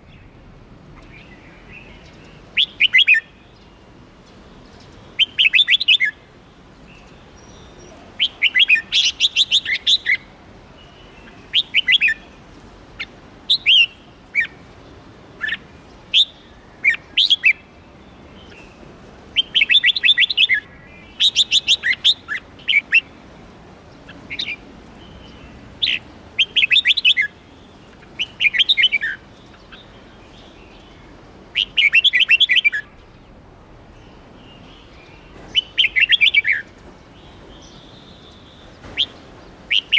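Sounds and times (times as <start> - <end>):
bulbul singing: 19.4 - 23.2.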